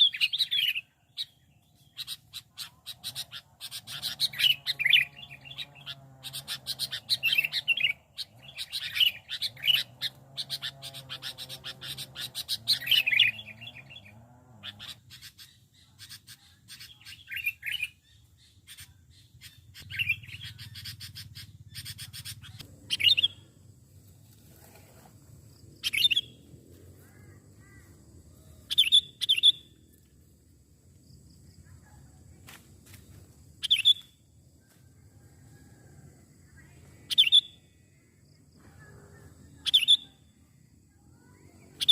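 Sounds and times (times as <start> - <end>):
bulbul chattering calls: 0.0 - 23.6, 25.8 - 26.4, 27.0 - 29.7, 38.6 - 40.2, 41.2 - 41.9.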